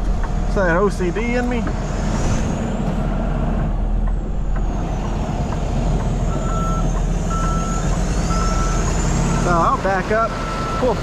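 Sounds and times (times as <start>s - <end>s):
truck diesel engine running: 0.0s - 11.0s
backup alarm beeping: 6.3s - 9.5s.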